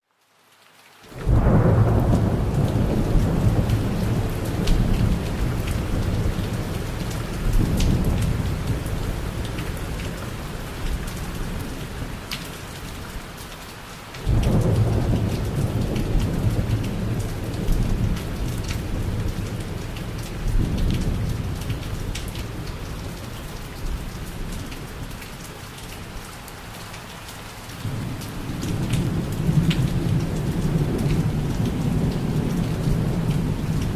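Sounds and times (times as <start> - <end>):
rain drops ticking: 0.0 - 33.9
deep rolling thunder: 1.2 - 9.6, 14.2 - 23.2, 27.8 - 33.9.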